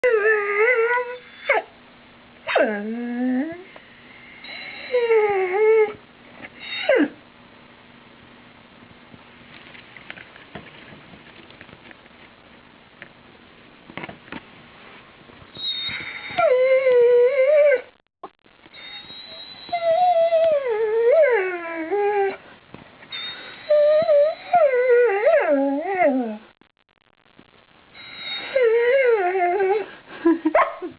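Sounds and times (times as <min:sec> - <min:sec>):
dog whining: 0:00.0 - 0:01.7, 0:02.5 - 0:03.7, 0:04.4 - 0:07.2, 0:15.6 - 0:17.9, 0:18.8 - 0:22.4, 0:23.1 - 0:26.5, 0:28.0 - 0:29.9.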